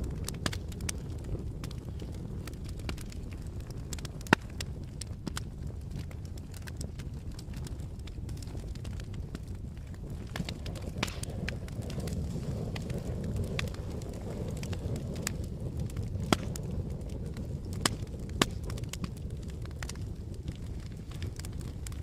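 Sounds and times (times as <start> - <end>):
campfire rumble: 0.0 - 22.0
fire crackling and popping: 0.0 - 22.0.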